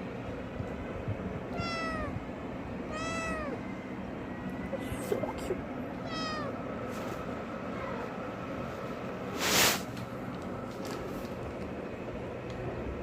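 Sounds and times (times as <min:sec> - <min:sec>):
low background hum: 0:00.0 - 0:13.0
cat meowing: 0:01.5 - 0:02.2, 0:02.9 - 0:03.7, 0:05.9 - 0:06.6, 0:07.7 - 0:08.2.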